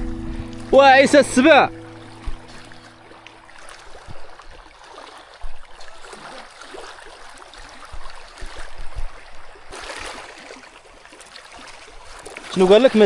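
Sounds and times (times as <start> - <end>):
low thumps: 0.0 - 4.2
water splashing and sloshing: 0.0 - 13.0.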